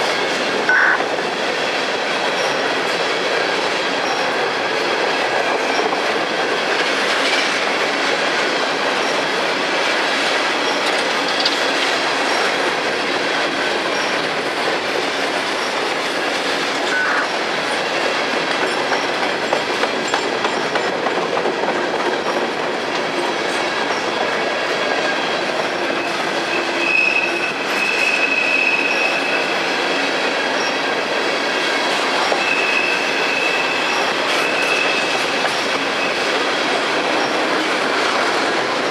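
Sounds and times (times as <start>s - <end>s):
freight train cars rolling: 0.0s - 38.9s
train wheel squeal: 1.6s - 2.8s, 4.0s - 4.4s, 8.9s - 9.3s, 10.6s - 12.6s, 13.9s - 14.4s, 24.8s - 30.9s, 31.8s - 37.7s.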